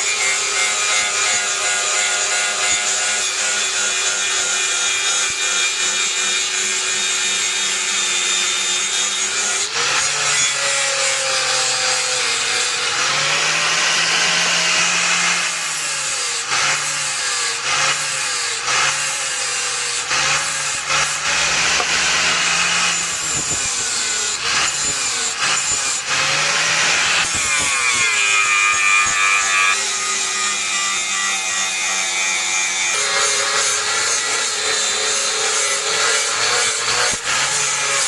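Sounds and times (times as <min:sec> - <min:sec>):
electric grinder grinding steel: 0:00.0 - 0:38.0.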